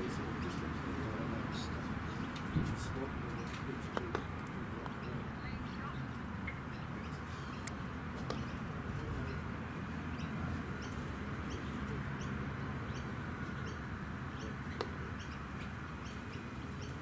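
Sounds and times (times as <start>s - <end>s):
bird chirping: 1.5s - 17.0s.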